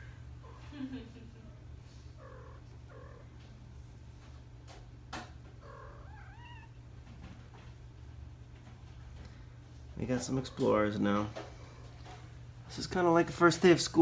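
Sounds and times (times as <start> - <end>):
kittens mewing: 0.0 - 3.6, 5.4 - 7.0, 10.3 - 12.4.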